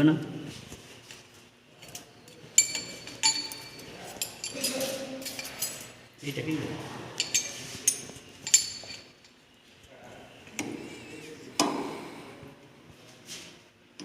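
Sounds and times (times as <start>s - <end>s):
metal pieces clinking: 1.8s - 6.0s, 7.2s - 9.4s.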